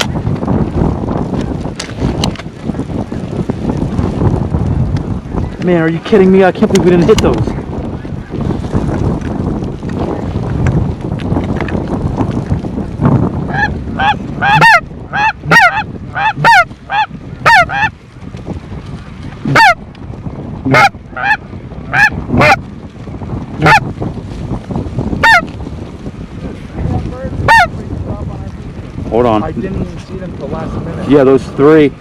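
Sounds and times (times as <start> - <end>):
goose honks: 13.5 - 17.9, 19.5 - 19.8, 20.7 - 22.6, 23.6 - 23.9, 25.2 - 25.5, 27.5 - 27.8.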